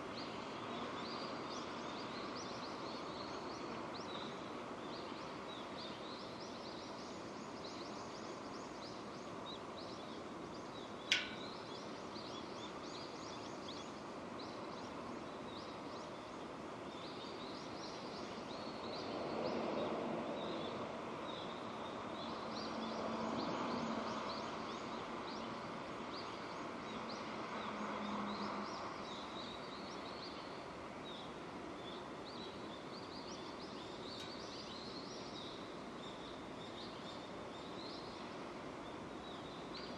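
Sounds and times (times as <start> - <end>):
small birds chirping: 0.0 - 39.9
sharp tick: 11.1 - 11.4.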